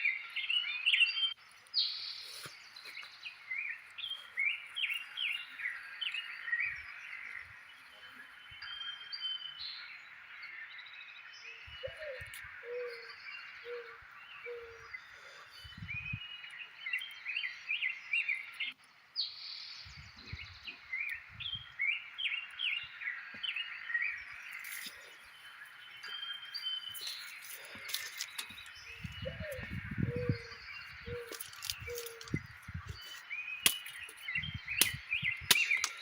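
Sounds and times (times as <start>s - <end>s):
birds chirping rapidly: 0.0s - 36.0s
swamp background chorus: 0.0s - 36.0s
low bird calls: 11.4s - 18.8s, 19.6s - 36.0s.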